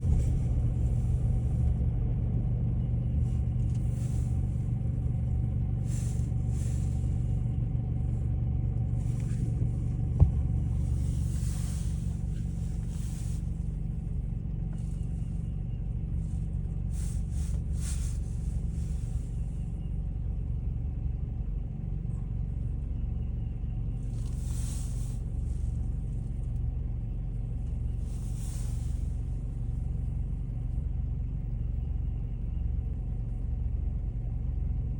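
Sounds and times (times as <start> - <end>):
low mechanical rumble: 0.0 - 34.9
short soft hisses: 3.8 - 4.8, 5.8 - 7.4, 10.6 - 14.0, 16.9 - 19.6, 24.2 - 25.8, 28.0 - 29.8.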